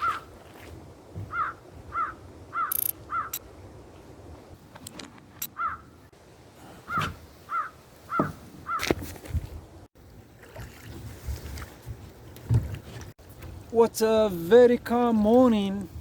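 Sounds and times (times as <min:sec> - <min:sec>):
crow cawing: 0:01.3 - 0:03.4, 0:05.6 - 0:05.9, 0:07.5 - 0:08.9.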